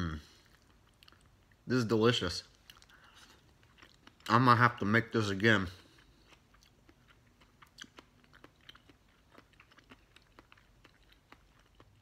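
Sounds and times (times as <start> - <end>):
soft wet chewing: 0.1 - 1.7, 2.4 - 12.0.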